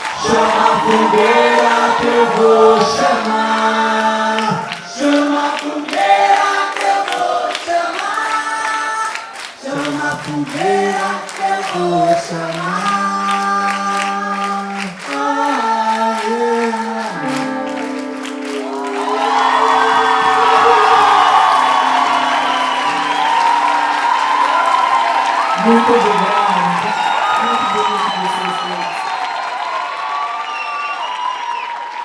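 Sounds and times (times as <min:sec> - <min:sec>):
voices calling out: 0:00.0 - 0:05.2, 0:18.6 - 0:29.2
group of voices singing: 0:00.0 - 0:24.2
audience applauding and cheering: 0:00.0 - 0:32.0.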